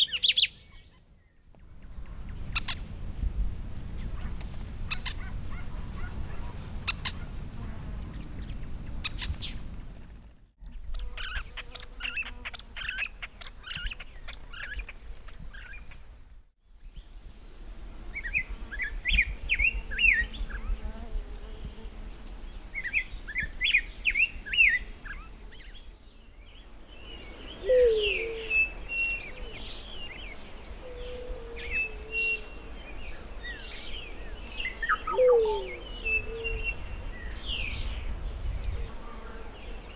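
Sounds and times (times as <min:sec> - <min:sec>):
low down-slurred bird call: 0:27.5 - 0:29.9, 0:34.4 - 0:36.9.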